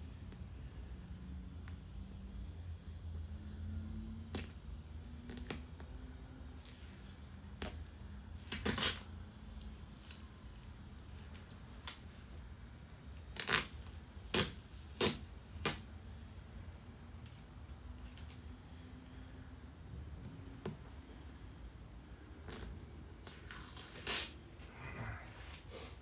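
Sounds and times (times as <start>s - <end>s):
adhesive tape peeling and crumpling: 8.4s - 16.4s, 22.4s - 24.6s.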